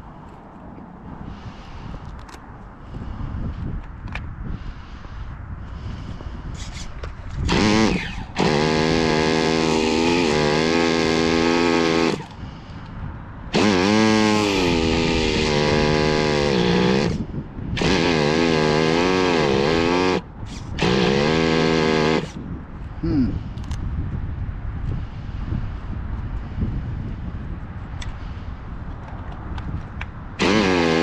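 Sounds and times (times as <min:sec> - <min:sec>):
electric starter cranking engine: 0:07.4 - 0:12.3, 0:13.5 - 0:17.2, 0:17.8 - 0:22.4, 0:30.4 - 0:31.0.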